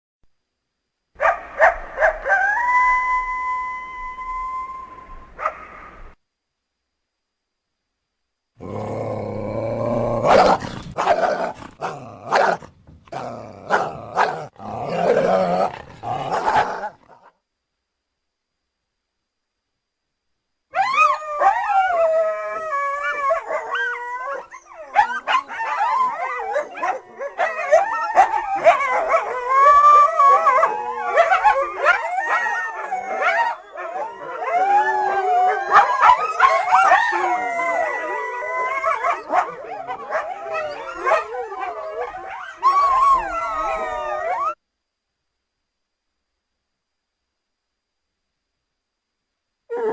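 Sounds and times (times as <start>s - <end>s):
coyotes howling and yipping: 1.2s - 6.0s, 8.6s - 17.1s, 20.7s - 44.6s.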